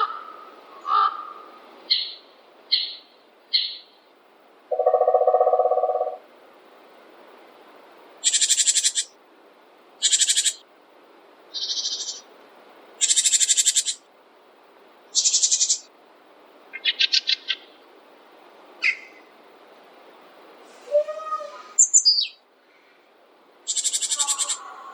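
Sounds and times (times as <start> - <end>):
high rapidly trilled bird calls: 0.8 - 4.0, 4.7 - 6.2, 8.2 - 9.2, 10.0 - 10.6, 11.5 - 12.3, 13.0 - 14.0, 15.1 - 15.9, 16.7 - 17.8, 18.8 - 19.3, 21.2 - 22.4, 23.6 - 24.8
low hoot-like trilled bird call: 4.7 - 6.2.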